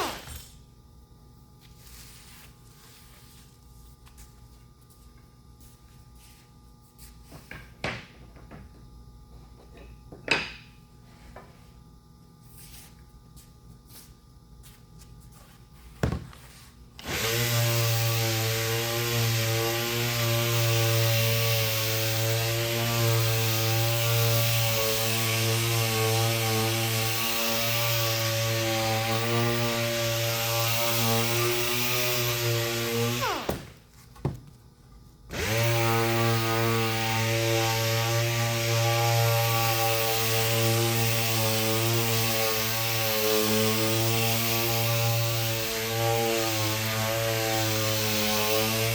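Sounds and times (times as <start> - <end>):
electric sander running: 17.0 - 33.8, 35.3 - 48.9.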